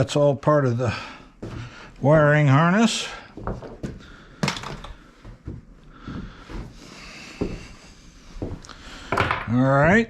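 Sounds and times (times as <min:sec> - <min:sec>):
knocks and clicks of handled parts: 0:04.4 - 0:05.0, 0:09.1 - 0:09.6.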